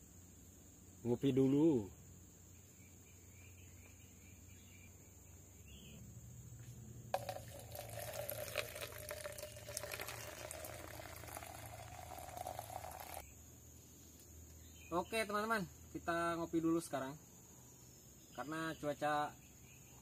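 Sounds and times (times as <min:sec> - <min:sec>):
water poured into cup: 0:07.2 - 0:13.2.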